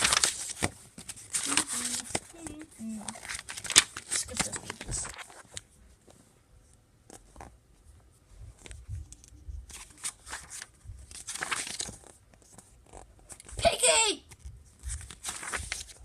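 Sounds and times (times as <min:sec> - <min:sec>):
book pages rustling: 0:00.0 - 0:13.6, 0:14.3 - 0:16.0.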